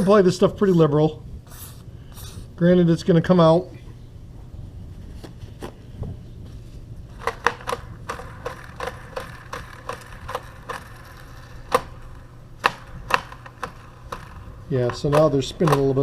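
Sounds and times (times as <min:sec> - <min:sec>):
roller wheels clicking: 0:07.1 - 0:16.0.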